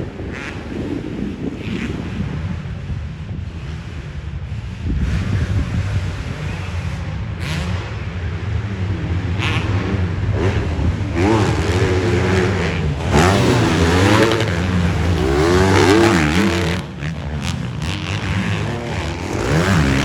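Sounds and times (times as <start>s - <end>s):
motocross bike engines revving: 0.0s - 20.0s.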